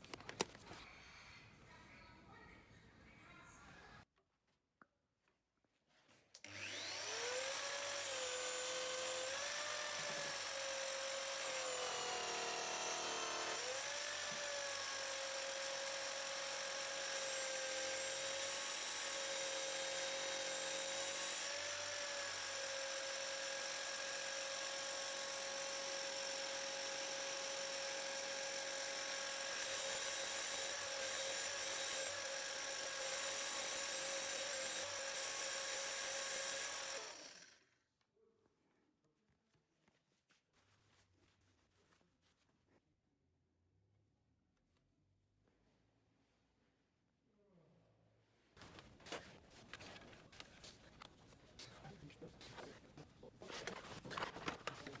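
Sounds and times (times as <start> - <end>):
electric rotary tool whining: 6.5 - 37.6.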